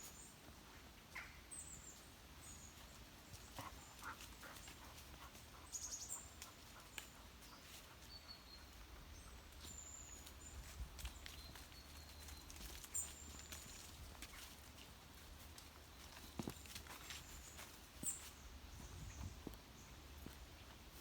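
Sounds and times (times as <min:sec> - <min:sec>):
footsteps on a path: 0:09.4 - 0:21.0.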